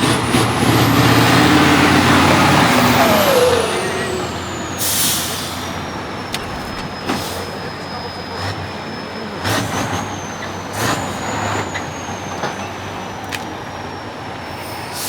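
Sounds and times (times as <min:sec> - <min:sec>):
truck engine pulling hard: 0:00.0 - 0:15.0
compressed air hiss: 0:04.8 - 0:05.7, 0:14.6 - 0:15.0.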